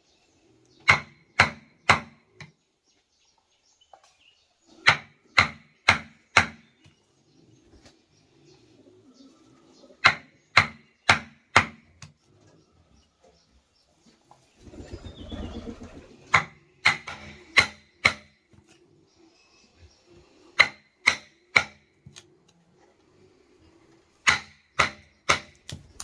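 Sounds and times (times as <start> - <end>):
tool striking wood: 0.8 - 2.2, 4.8 - 6.7, 10.0 - 11.9, 16.3 - 18.4, 20.6 - 21.9, 24.2 - 25.9.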